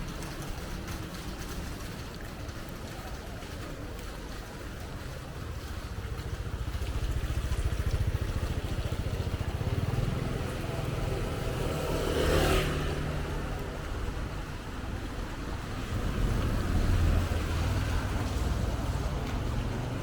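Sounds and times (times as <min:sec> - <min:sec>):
motorcycle engine running: 0:05.0 - 0:20.0.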